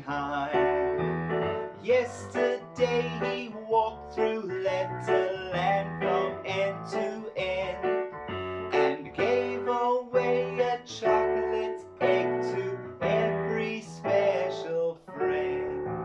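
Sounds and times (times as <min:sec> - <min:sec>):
instrumental accompaniment: 0:00.6 - 0:03.5
children's song singing: 0:01.9 - 0:07.6, 0:08.7 - 0:15.7.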